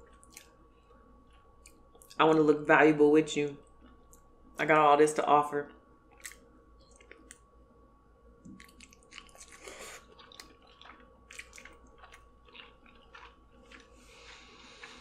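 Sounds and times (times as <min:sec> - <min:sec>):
person chewing soft food: 0:00.0 - 0:02.2, 0:03.6 - 0:04.3, 0:06.1 - 0:07.5, 0:08.4 - 0:15.0.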